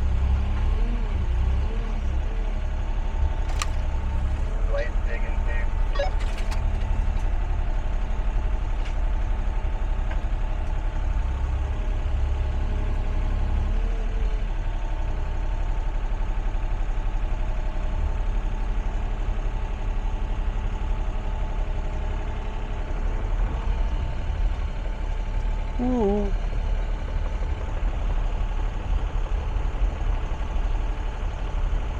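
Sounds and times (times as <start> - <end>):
excavator diesel engine running: 0.0 - 31.9.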